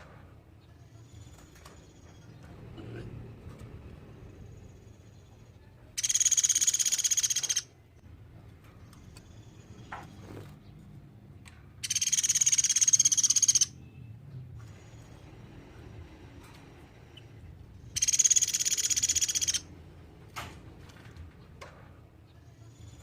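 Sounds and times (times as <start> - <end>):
woodpecker high rapid trills: 6.0 - 7.7, 11.8 - 13.8, 17.9 - 19.7.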